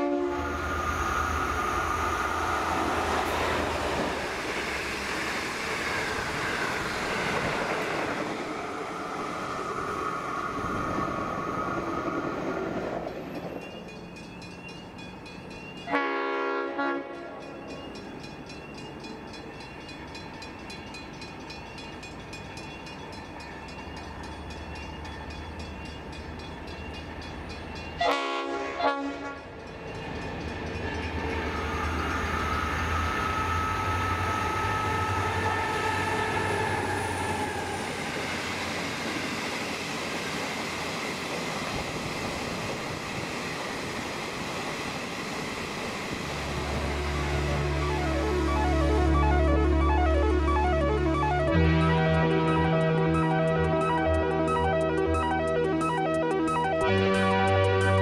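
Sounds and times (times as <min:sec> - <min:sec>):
train horn blasts: 0:00.0 - 0:00.8, 0:15.8 - 0:17.6, 0:28.0 - 0:29.6, 0:31.4 - 0:36.7, 0:46.8 - 0:54.2, 0:56.8 - 0:58.0
diesel locomotive engine rumble: 0:00.0 - 0:58.0.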